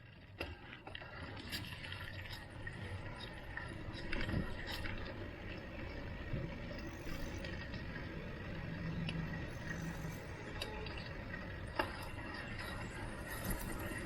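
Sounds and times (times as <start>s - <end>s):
road noise rush: 5.1s - 14.0s.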